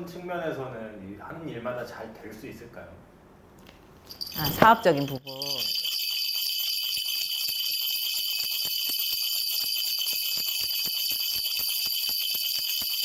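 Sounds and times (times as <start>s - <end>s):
brass bells jingling: 4.1s - 13.0s.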